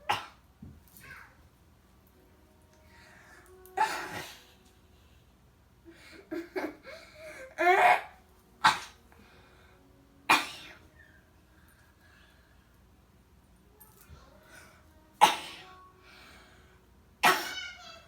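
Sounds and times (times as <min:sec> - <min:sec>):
child coughing: 0:00.0 - 0:00.4, 0:03.8 - 0:04.4, 0:07.6 - 0:09.0, 0:10.3 - 0:10.8, 0:15.2 - 0:15.8, 0:17.2 - 0:18.0
child sneezing: 0:00.0 - 0:00.4, 0:03.8 - 0:04.5, 0:07.6 - 0:09.0, 0:15.2 - 0:15.7, 0:17.2 - 0:18.0.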